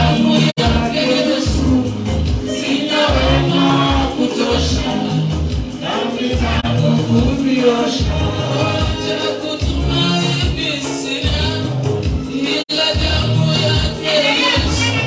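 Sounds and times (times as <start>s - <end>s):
band with rhythmic bass: 0.0s - 15.0s
gospel singers: 0.0s - 15.0s.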